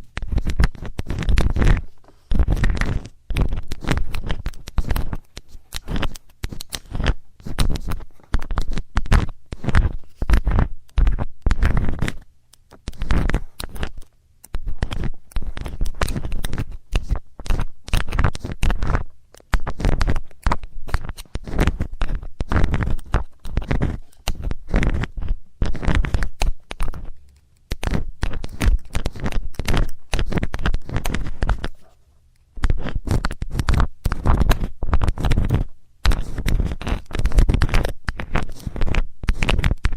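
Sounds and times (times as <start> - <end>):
metal tool scratching and scraping: 22.8 - 26.2.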